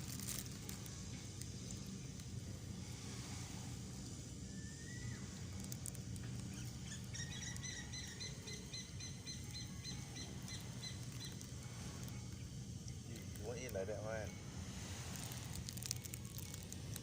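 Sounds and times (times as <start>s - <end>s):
steady low rumble: 0.0s - 17.0s
bird whistling and chirping: 4.4s - 5.4s, 6.4s - 11.5s.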